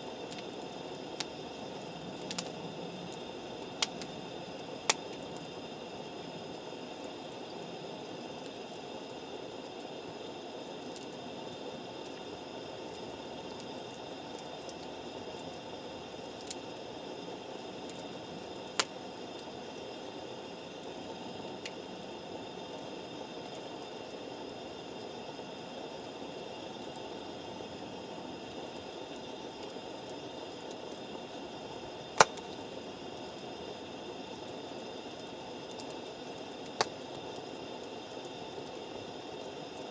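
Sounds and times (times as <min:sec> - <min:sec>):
burning wood popping: 0:00.0 - 0:08.7, 0:10.7 - 0:22.0, 0:28.6 - 0:39.9
campfire hissing: 0:00.0 - 0:39.9.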